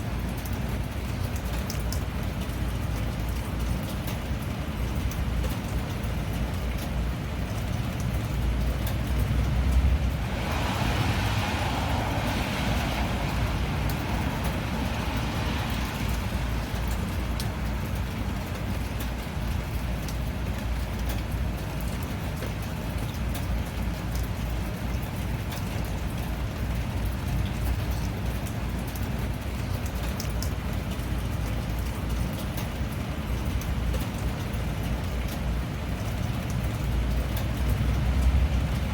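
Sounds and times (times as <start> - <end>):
drips: 0.0 - 38.9
steady rain: 0.0 - 38.9
hissing rush: 10.2 - 16.6.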